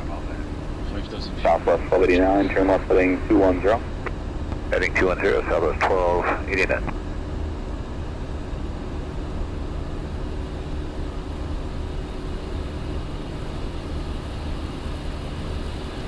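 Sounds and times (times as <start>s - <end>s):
aircraft cabin rumble and hiss: 0.0s - 7.0s
faint steady hum: 0.0s - 7.2s.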